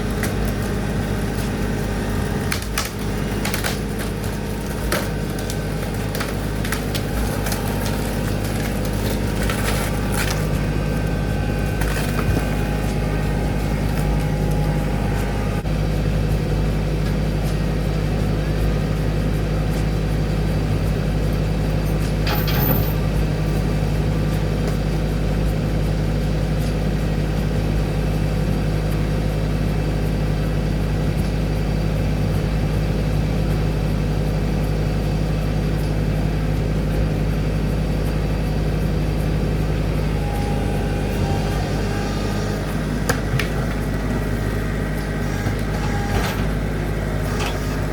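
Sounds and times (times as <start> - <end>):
tractor engine running: 0.0 - 47.9
sharp cracks and knocks: 2.2 - 10.7.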